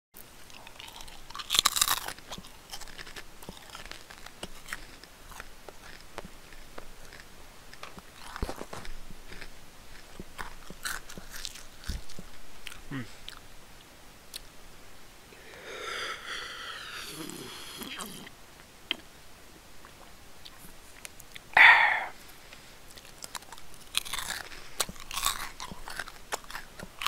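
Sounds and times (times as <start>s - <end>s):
person chewing crunchy food: 0.2s - 13.5s, 19.8s - 27.0s
mouth clicks: 21.2s - 22.2s.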